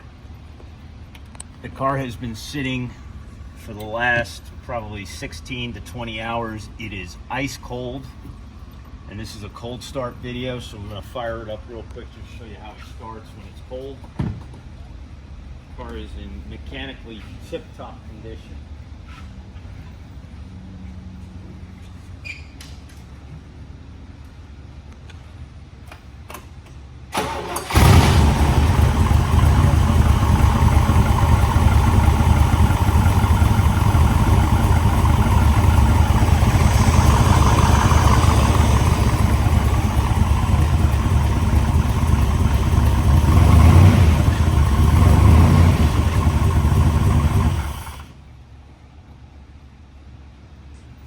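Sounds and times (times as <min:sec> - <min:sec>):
car engine starting and running: 0:27.1 - 0:48.2.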